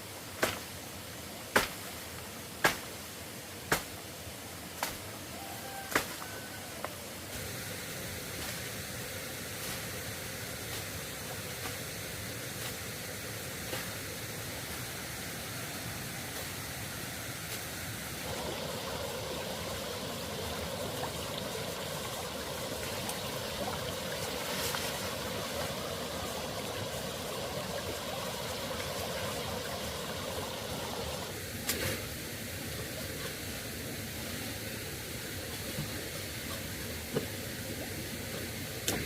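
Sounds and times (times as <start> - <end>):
running water rushing: 0.0 - 39.0.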